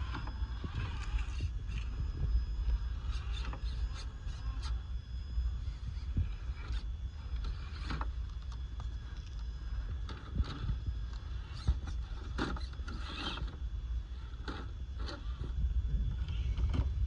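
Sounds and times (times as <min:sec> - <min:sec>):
tyres clicking and crunching: 0:06.6 - 0:13.6.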